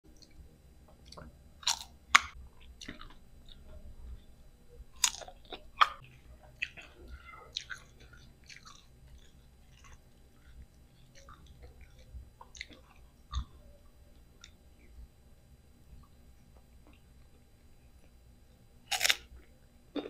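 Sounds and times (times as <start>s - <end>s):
crunchy chewing: 1.0s - 3.8s, 5.0s - 13.6s, 18.9s - 20.0s
crisp crunches biting mango: 18.9s - 19.3s.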